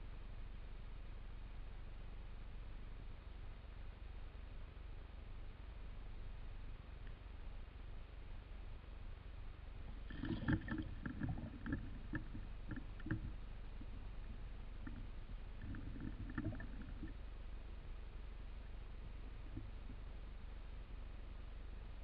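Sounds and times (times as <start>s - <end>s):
steady low rumble: 9.0s - 22.0s
water lapping against boat: 9.9s - 17.2s.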